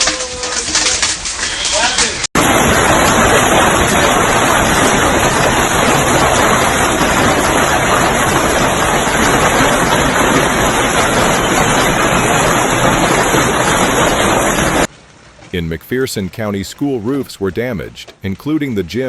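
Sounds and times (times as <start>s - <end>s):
heavy pouring rain: 0.0s - 14.9s.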